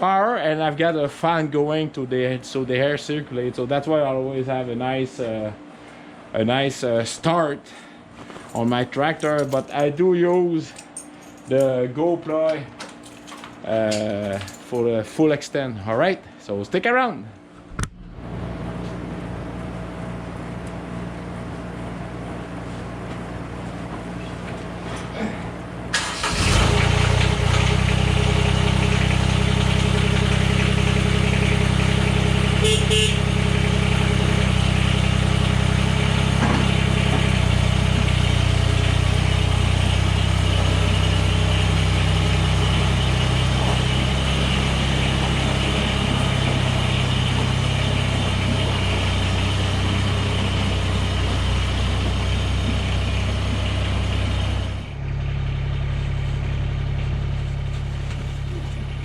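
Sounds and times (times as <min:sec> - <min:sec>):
tractor diesel engine running: 0:25.7 - 0:59.0.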